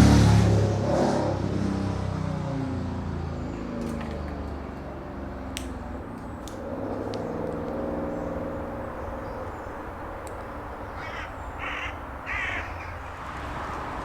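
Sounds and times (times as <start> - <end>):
motorcycle engine passing: 5.8 - 14.0.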